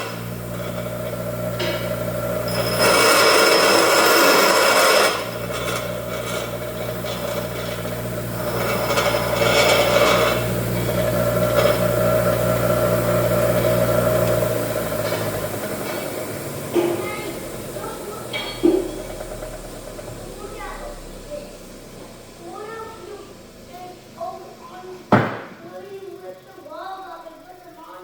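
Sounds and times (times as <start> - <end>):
tool scraping metal: 0.0 - 19.7
steady machine hum: 0.0 - 28.0.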